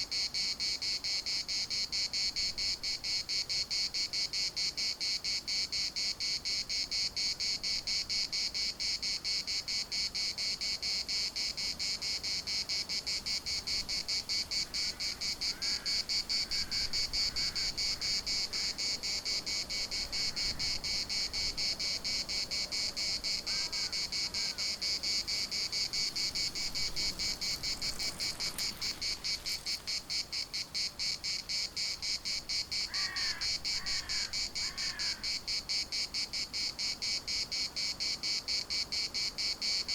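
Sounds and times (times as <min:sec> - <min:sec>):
cicadas buzzing: 0:00.0 - 0:39.9
faint short bird calls: 0:14.6 - 0:18.9, 0:23.4 - 0:25.1, 0:32.8 - 0:35.4.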